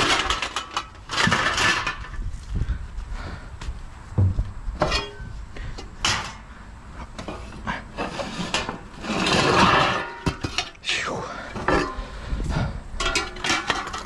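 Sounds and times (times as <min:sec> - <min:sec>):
scrap metal knocks and clatters: 0:00.0 - 0:02.2, 0:04.2 - 0:05.3, 0:05.9 - 0:06.4, 0:07.1 - 0:10.8, 0:11.6 - 0:12.1, 0:13.0 - 0:14.0.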